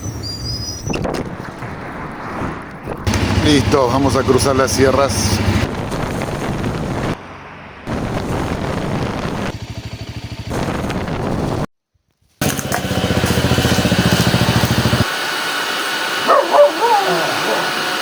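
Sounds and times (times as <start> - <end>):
motorcycle engine running: 3.1 - 11.7, 12.4 - 18.0.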